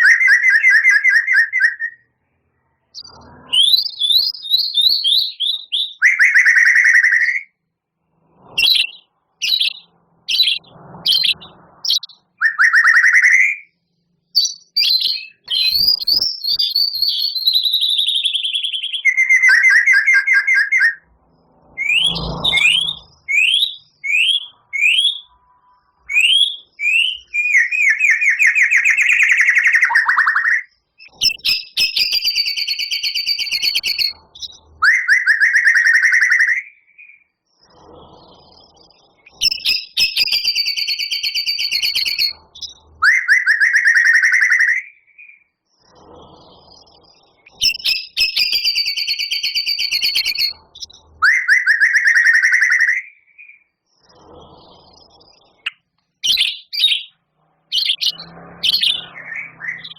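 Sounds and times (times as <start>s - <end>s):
bird singing trills and rattles: 8.6s - 13.6s, 14.4s - 20.9s, 26.1s - 37.2s, 38.4s - 54.1s, 54.7s - 59.9s.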